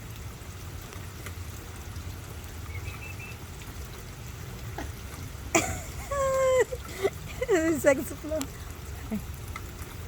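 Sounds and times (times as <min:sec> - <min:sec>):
steady rain: 0:00.0 - 0:10.0
water pouring and trickling: 0:00.0 - 0:10.0
faint high chirp: 0:02.7 - 0:03.4.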